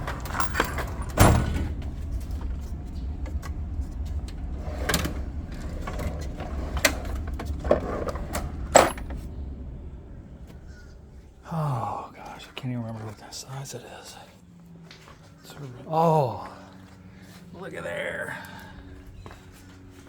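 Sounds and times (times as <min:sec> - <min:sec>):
steady low hum: 0:00.0 - 0:20.0
tools knocking and clattering: 0:04.9 - 0:09.3.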